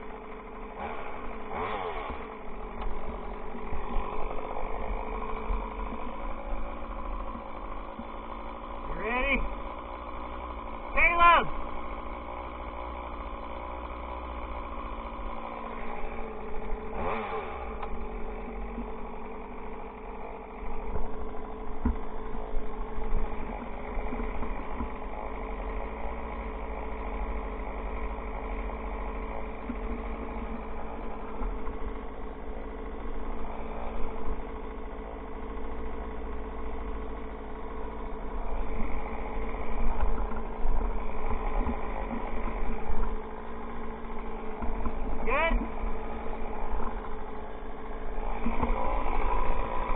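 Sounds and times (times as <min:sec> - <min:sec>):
chainsaw engine running: 0:00.0 - 0:49.9.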